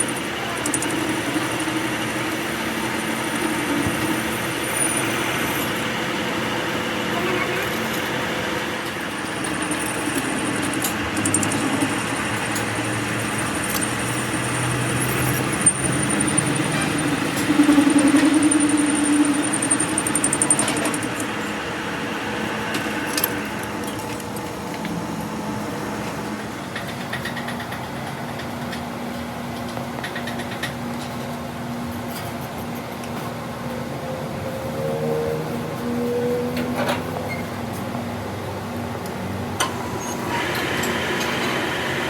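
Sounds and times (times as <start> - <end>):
thin high whine: 0.0 - 26.6
workshop machinery humming: 0.0 - 42.0.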